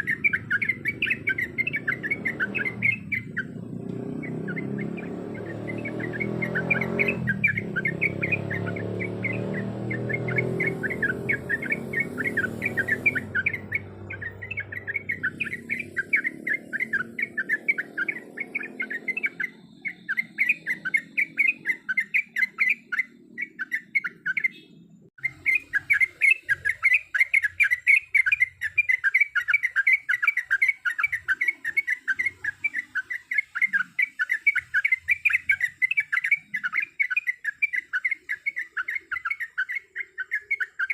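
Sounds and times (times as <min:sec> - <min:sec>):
bird chattering call: 0:00.0 - 0:40.9.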